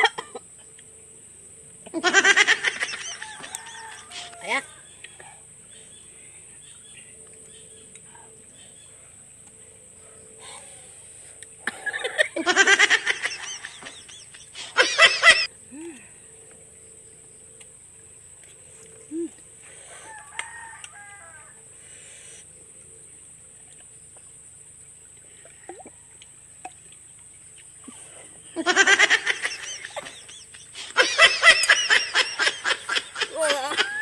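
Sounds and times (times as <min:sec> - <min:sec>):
people laughing: 0:02.0 - 0:04.4, 0:12.0 - 0:15.5, 0:28.6 - 0:34.0
rooster crowing: 0:03.0 - 0:04.7, 0:19.9 - 0:21.7.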